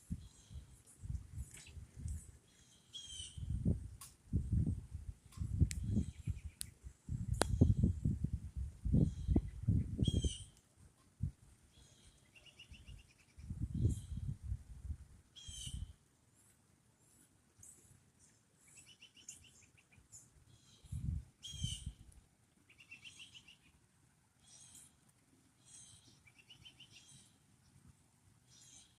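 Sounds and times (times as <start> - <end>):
wind buffeting microphone: 0.0 - 2.4, 3.3 - 10.5, 12.8 - 15.9, 20.8 - 22.1
songbirds trilling and chirping: 0.0 - 8.2, 8.8 - 14.5, 15.2 - 29.0.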